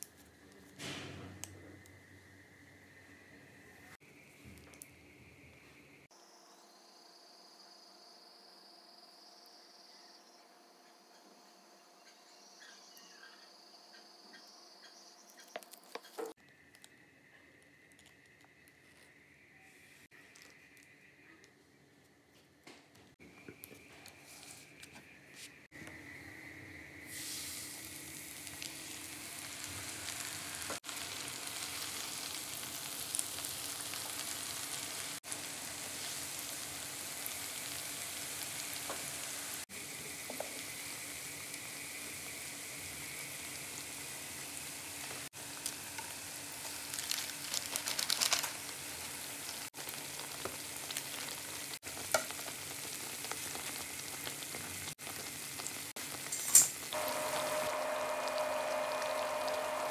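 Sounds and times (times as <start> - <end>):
food sizzling in oil: 26.3 - 59.9.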